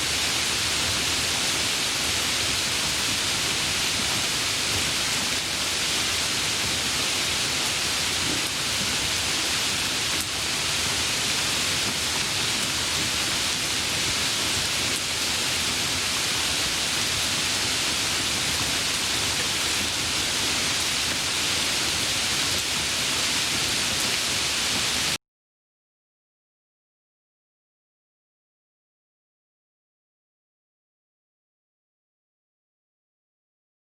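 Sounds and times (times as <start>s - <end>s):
heavy rainfall: 0.0s - 25.2s.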